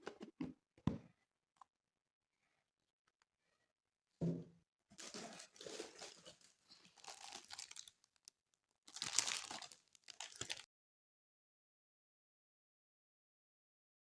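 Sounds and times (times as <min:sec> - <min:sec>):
packaging crinkling and tearing: 0:05.0 - 0:10.7.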